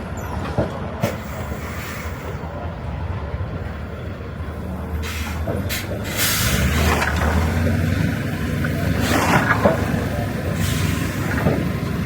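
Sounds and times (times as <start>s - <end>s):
diesel truck engine running: 2.2s - 12.0s
hissing air bursts: 5.0s - 6.8s.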